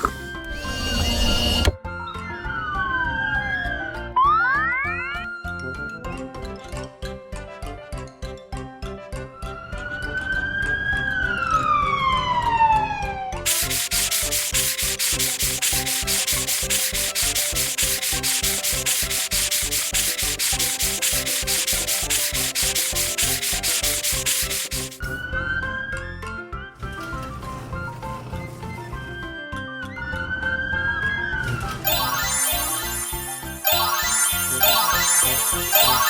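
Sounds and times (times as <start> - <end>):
whistle-like sliding tone: 0.0 - 1.8, 31.8 - 36.0
fast-pulsing hiss: 13.5 - 25.1
upbeat children's music: 13.5 - 26.9, 31.8 - 36.0.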